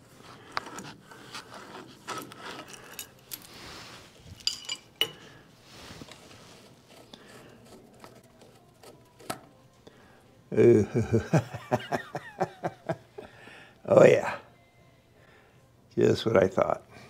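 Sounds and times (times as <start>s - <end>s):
metallic clinks and scraping: 1.5s - 5.4s.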